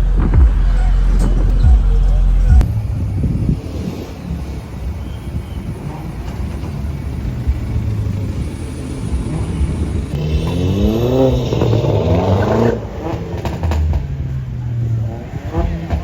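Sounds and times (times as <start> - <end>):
car engine low drone: 0.0 - 16.0
car engine revving: 0.0 - 16.0
exhaust cracks: 0.0 - 16.0.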